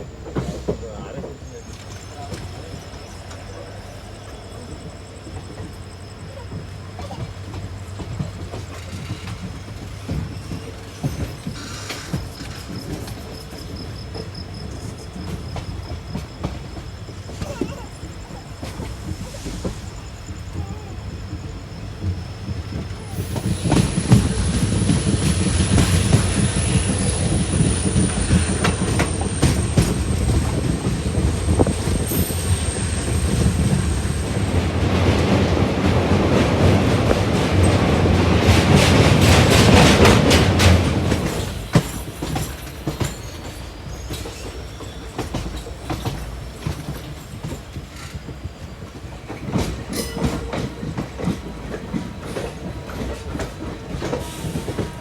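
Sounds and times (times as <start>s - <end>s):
train rumbling: 0.0s - 55.0s
train wheels clacking on rails: 0.0s - 55.0s
high wheel squeal: 10.1s - 13.5s, 22.8s - 34.6s.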